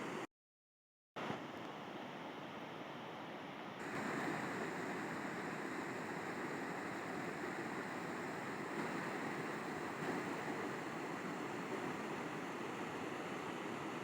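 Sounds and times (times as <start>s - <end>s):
river water rushing: 3.8s - 14.0s.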